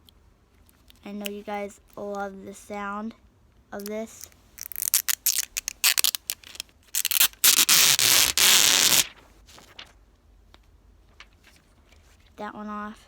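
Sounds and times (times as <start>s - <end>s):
plastic film crackling: 3.8s - 9.9s
plastic film rasping peel: 4.2s - 9.8s.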